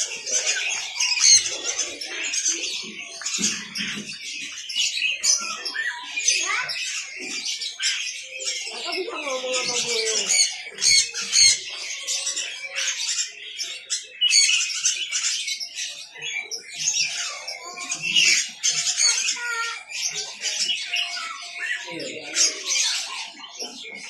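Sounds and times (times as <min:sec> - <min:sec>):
lovebirds chattering and squawking: 0:00.0 - 0:24.0.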